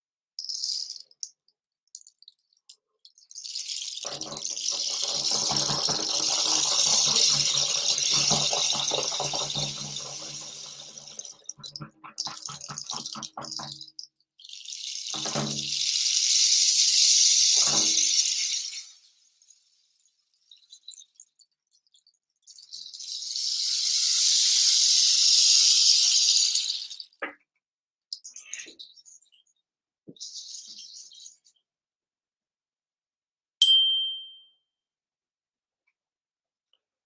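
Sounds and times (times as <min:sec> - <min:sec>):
rattle beads pouring: 0:00.4 - 0:01.2, 0:03.1 - 0:20.8, 0:22.5 - 0:27.2.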